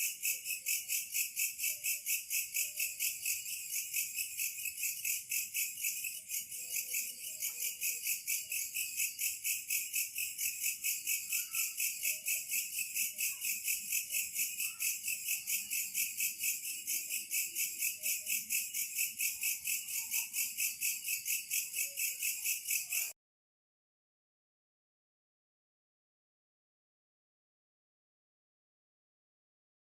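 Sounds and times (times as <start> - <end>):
insects chirping: 0.0 - 23.1.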